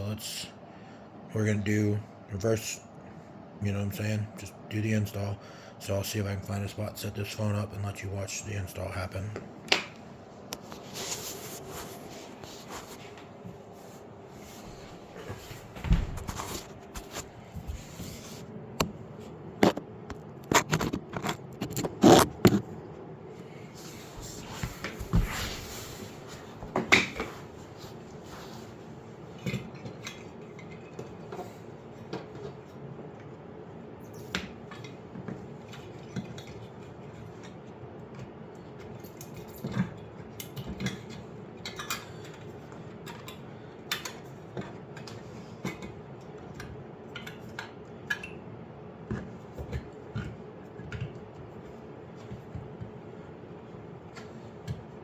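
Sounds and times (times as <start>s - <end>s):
clicks and knocks of hand work: 19.6s - 22.6s.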